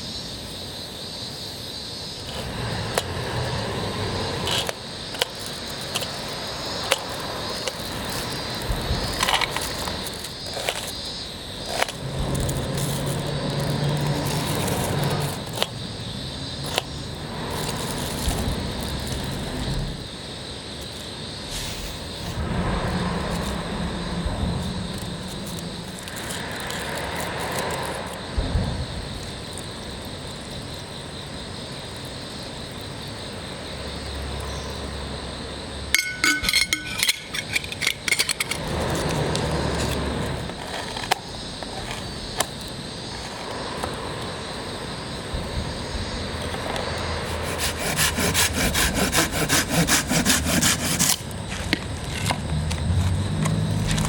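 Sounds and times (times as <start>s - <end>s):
hand saw cutting wood: 4.4s - 6.3s, 47.2s - 51.3s.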